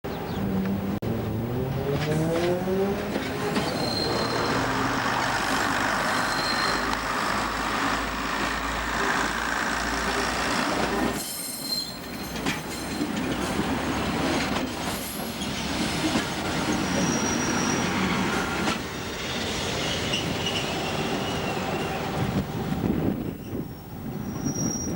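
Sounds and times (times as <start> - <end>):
train moving along track: 0.1 - 24.9
high-pitched wheel squeals: 3.4 - 5.2, 5.9 - 7.0, 11.2 - 13.0, 16.7 - 18.6, 23.4 - 24.9.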